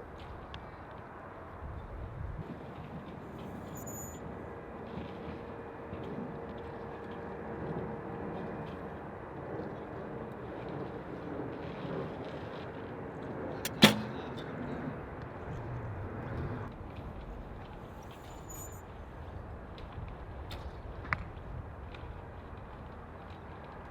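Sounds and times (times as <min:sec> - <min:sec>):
wind noise: 0:01.5 - 0:03.7
bow string snapping: 0:13.7 - 0:14.3.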